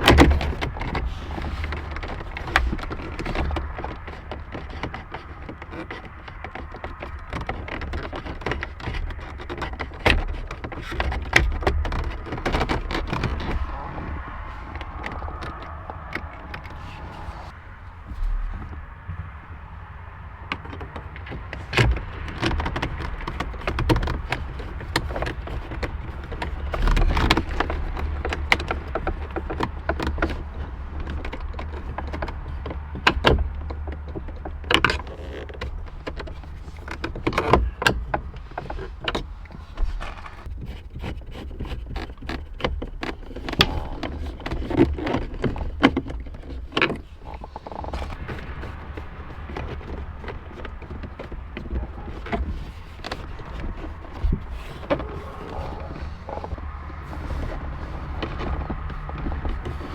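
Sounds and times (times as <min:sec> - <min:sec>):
plastic trim clicking and knocking: 0:00.0 - 0:17.6, 0:18.2 - 0:59.9
low hum: 0:08.7 - 0:40.4.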